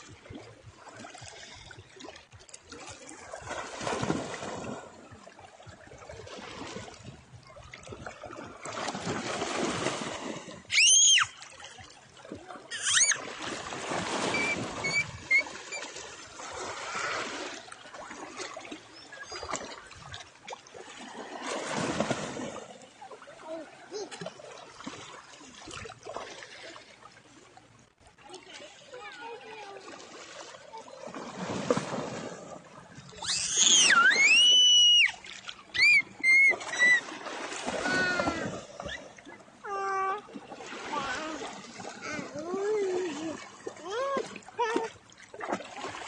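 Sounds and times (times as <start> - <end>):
small waves washing onto beach: 0.0 - 46.0
loud high-pitched cries: 10.7 - 11.3, 12.7 - 13.2, 33.2 - 35.2, 35.8 - 37.0.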